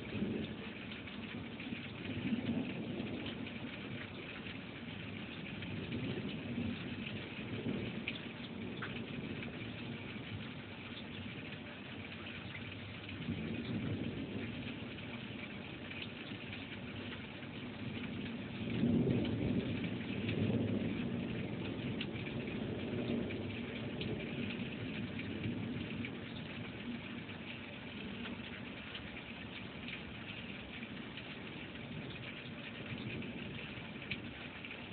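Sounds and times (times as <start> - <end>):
rolling thunder: 0.0 - 11.3, 12.7 - 28.8
steady rain: 0.0 - 34.9.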